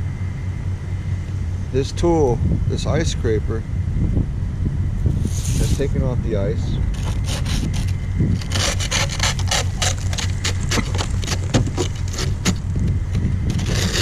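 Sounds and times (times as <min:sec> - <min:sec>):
car running low hum: 0:00.0 - 0:14.0
ice scraper scraping windshield: 0:05.2 - 0:05.9, 0:06.9 - 0:14.0.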